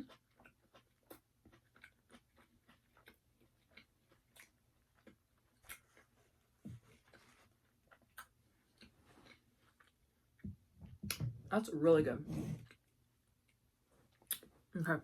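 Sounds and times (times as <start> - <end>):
chewing crispy food: 0.0 - 10.4
wet mouth clicks: 14.3 - 14.5.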